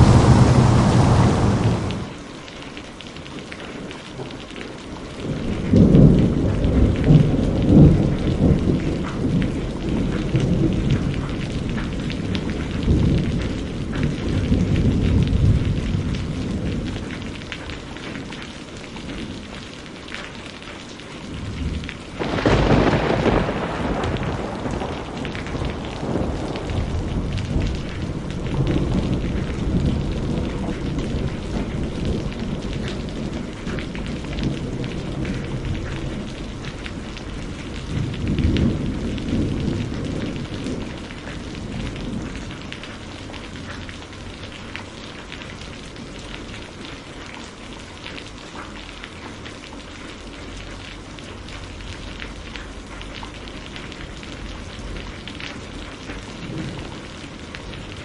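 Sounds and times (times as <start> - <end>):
sharp thunder crack: 0.0 - 2.2, 22.2 - 29.9
rolling thunder: 0.0 - 2.3, 5.2 - 17.1, 21.3 - 42.7, 56.1 - 58.0
steady rain: 0.0 - 58.0.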